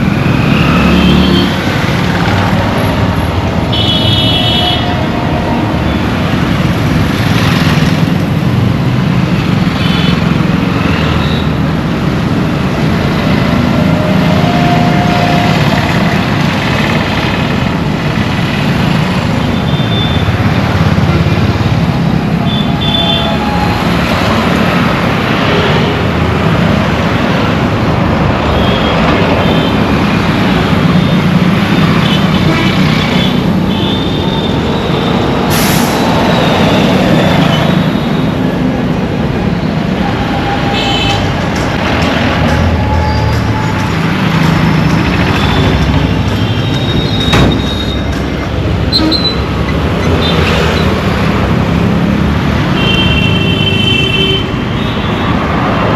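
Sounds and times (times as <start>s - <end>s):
tyre and road noise: 0.0s - 55.9s
vehicle engines running: 5.0s - 52.8s.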